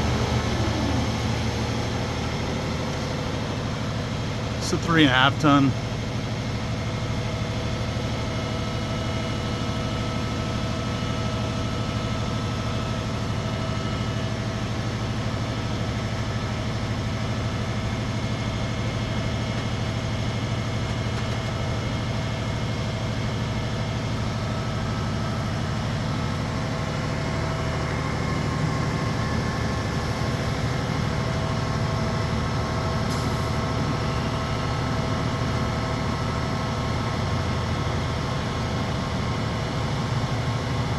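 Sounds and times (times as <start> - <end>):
truck engine running steadily: 0.0 - 40.9.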